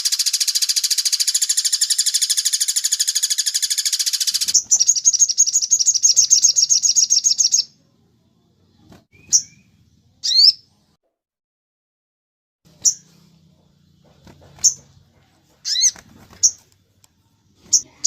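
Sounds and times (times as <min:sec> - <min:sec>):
songbird high trill: 0:00.0 - 0:07.7.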